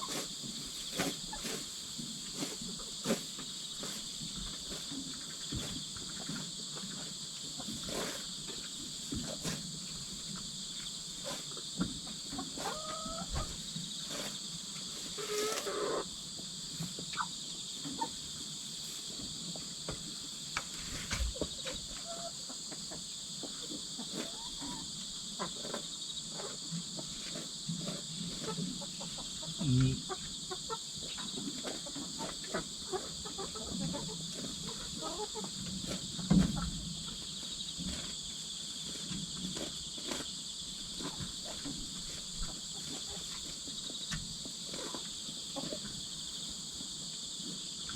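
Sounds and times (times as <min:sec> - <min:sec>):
chickens scratching about: 0:00.0 - 0:47.6
insects chirring: 0:00.0 - 0:47.9
soft chicken calls: 0:11.2 - 0:16.1, 0:21.0 - 0:25.8.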